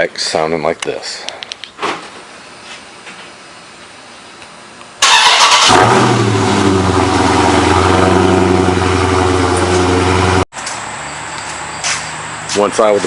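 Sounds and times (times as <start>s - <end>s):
car engine starting and idling: 5.0s - 10.5s.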